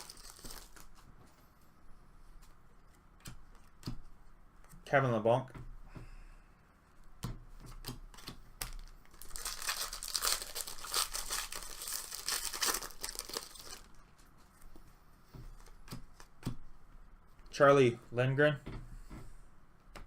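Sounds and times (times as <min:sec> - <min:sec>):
foil wrapper tearing and crinkling: 0:00.0 - 0:01.0, 0:08.7 - 0:14.0.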